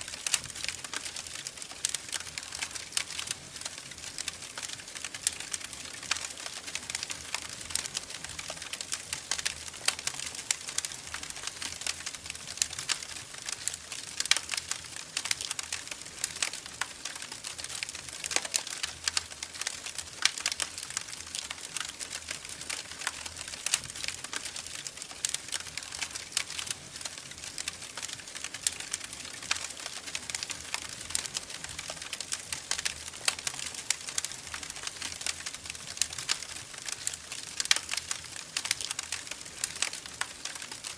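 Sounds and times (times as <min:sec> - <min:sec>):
wood fire crackling: 0:00.0 - 0:40.9
sharp pops and snaps: 0:00.1 - 0:40.9.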